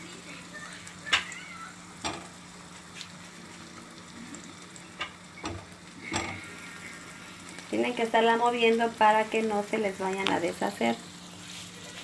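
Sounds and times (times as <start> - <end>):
cheese sizzling in oil: 0.0 - 12.0
sharp taps in frying pan: 1.0 - 1.4, 2.0 - 2.4, 5.0 - 6.4.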